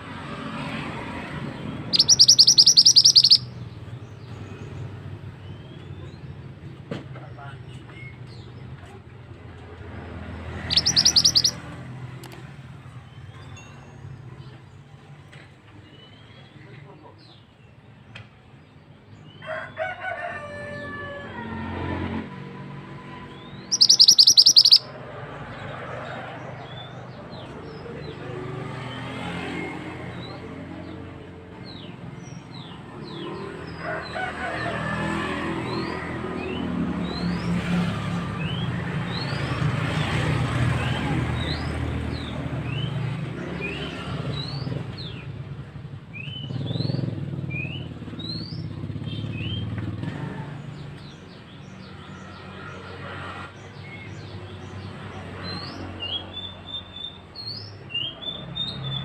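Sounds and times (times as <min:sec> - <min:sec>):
songbird whistled chirps: 0:01.9 - 0:03.5, 0:10.6 - 0:11.6, 0:23.3 - 0:24.9
bird sharp high notes: 0:02.0 - 0:03.5, 0:10.7 - 0:11.6, 0:23.7 - 0:24.9.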